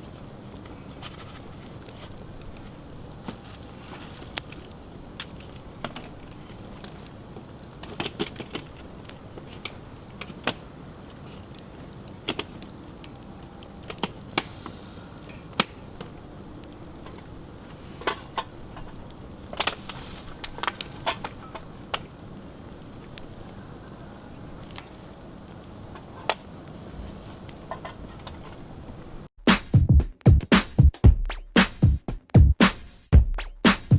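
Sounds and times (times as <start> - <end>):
campfire crackling and popping: 0.0 - 29.3
drum-machine beat music: 29.4 - 33.9.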